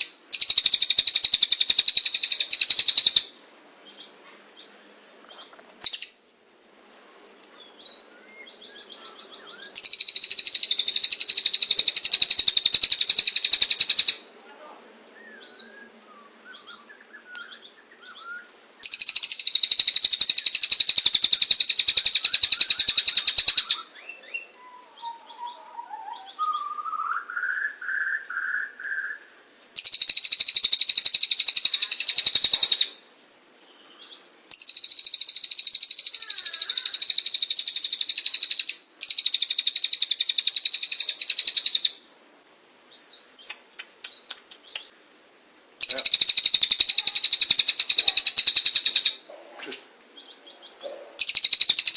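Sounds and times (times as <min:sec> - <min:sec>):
songbird trilling: 0:00.0 - 0:04.8, 0:05.4 - 0:06.2, 0:07.6 - 0:14.3, 0:15.2 - 0:15.8, 0:16.5 - 0:29.2, 0:29.8 - 0:33.0, 0:33.6 - 0:42.0, 0:45.8 - 0:51.9
bird chirps: 0:00.0 - 0:06.2, 0:07.6 - 0:14.3, 0:15.2 - 0:33.0, 0:33.6 - 0:42.0, 0:42.9 - 0:45.0, 0:45.8 - 0:51.9
rising whistled bird notes: 0:15.2 - 0:33.0.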